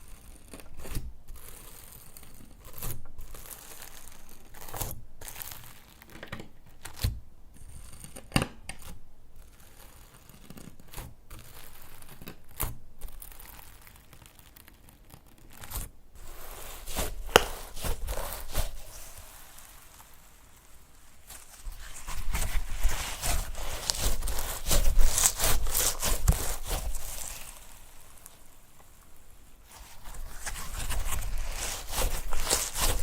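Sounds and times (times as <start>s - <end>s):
slime squishing and crackling: 2.6s - 6.2s, 11.4s - 33.0s
sharp slime pops: 16.9s - 18.6s.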